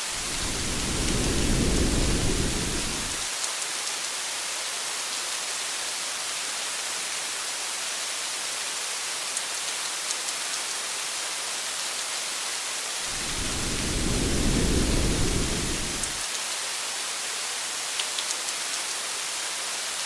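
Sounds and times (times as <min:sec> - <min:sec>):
rain hissing on a car: 0:00.0 - 0:03.3, 0:13.0 - 0:16.3
thunder rumble: 0:00.0 - 0:03.3, 0:13.1 - 0:16.2.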